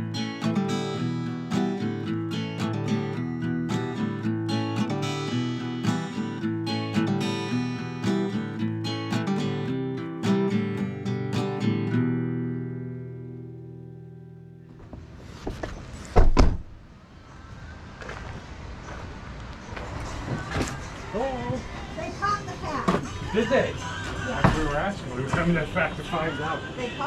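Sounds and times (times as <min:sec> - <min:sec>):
strummed acoustic guitar: 0:00.0 - 0:16.0
loud thump: 0:14.9 - 0:16.8.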